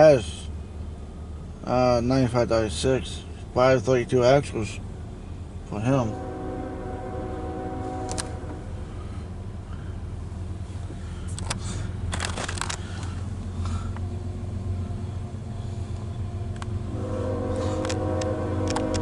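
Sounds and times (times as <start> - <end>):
train rumbling by: 0.0 - 19.0
rattles and clicks: 10.9 - 14.1, 15.9 - 16.8, 17.7 - 18.0, 18.6 - 19.0.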